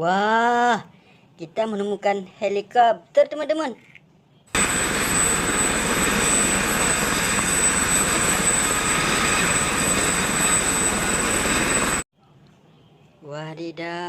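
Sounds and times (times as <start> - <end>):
helicopter engine and rotor: 4.6 - 12.0
thin high whine: 4.6 - 12.0.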